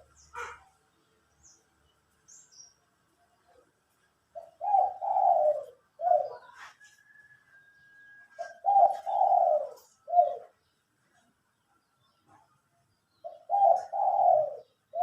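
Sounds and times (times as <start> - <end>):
dove cooing: 4.3 - 7.2, 8.2 - 10.7, 13.2 - 15.0.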